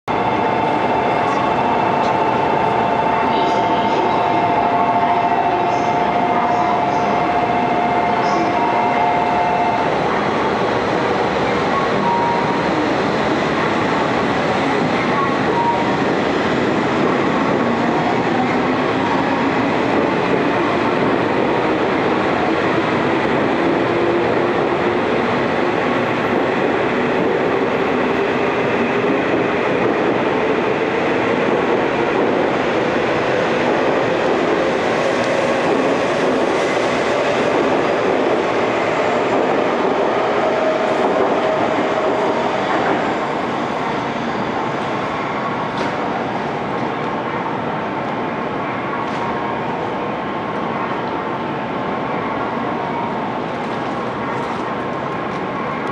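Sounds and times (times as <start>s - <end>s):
train wheels rumbling: 0.1s - 51.6s.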